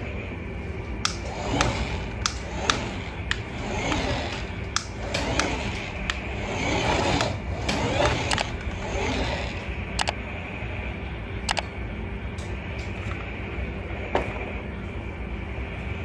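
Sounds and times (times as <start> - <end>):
toy motor and gears whirring: 0.8 - 10.2
sharp clicks: 1.0 - 10.2, 11.5 - 11.7.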